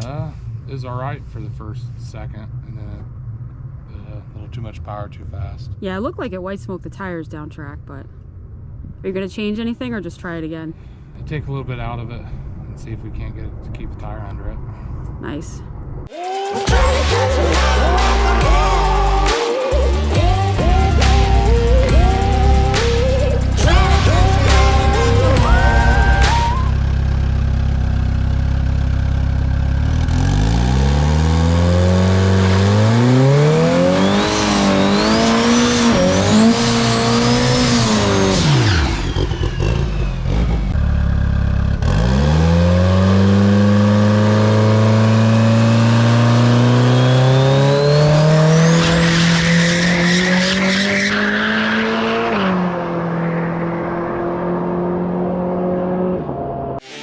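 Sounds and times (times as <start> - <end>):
high rising turbo whistle: 16.1 - 26.8, 32.5 - 39.9
drag car engine accelerating: 16.3 - 57.0.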